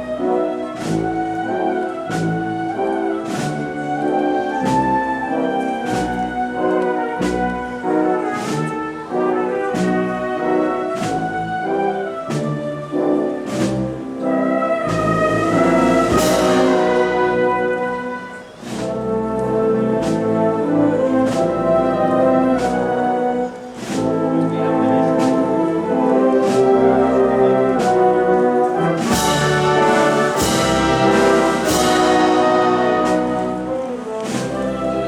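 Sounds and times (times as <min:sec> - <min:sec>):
marching band brass playing: 0:00.0 - 0:35.0
drum beat: 0:00.8 - 0:05.0, 0:14.9 - 0:19.0, 0:27.8 - 0:34.8.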